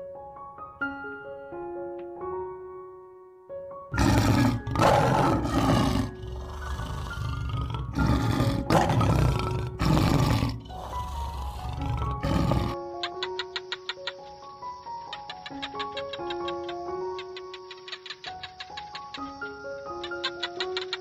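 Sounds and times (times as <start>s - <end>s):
soft piano music: 0.0s - 21.0s
lion roaring: 3.9s - 12.8s.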